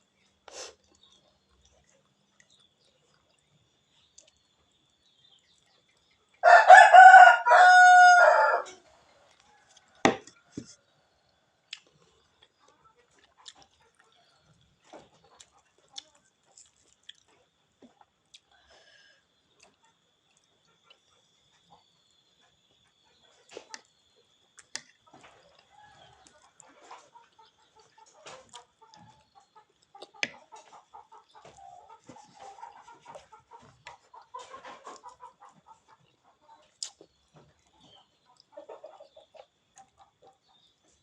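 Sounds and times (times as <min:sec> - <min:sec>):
rooster crowing: 0:06.4 - 0:08.8.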